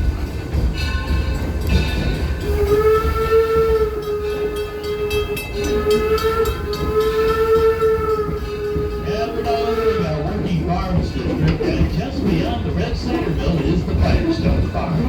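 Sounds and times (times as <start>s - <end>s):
low rumble of train running: 0.0s - 15.0s
steam locomotive whistle blasts: 2.4s - 10.6s.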